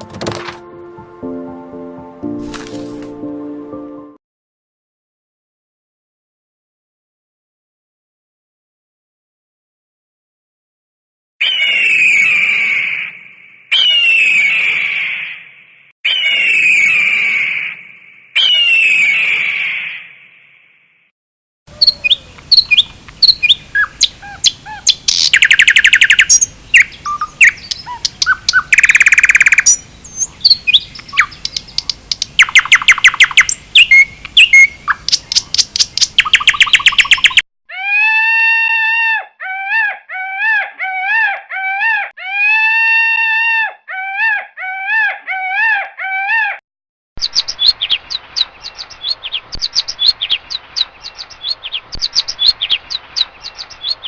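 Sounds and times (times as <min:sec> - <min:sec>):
buzzy bird trills: 0:21.7 - 0:37.4
songbirds singing: 0:21.7 - 0:37.4, 0:47.2 - 0:54.0.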